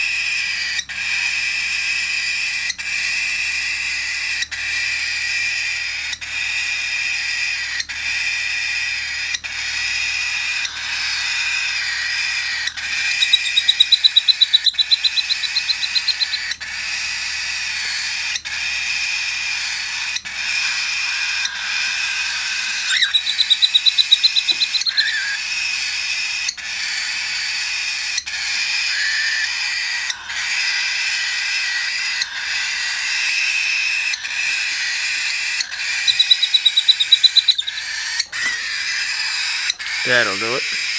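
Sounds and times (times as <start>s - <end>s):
cockatiel chick begging calls: 2.2s - 40.9s.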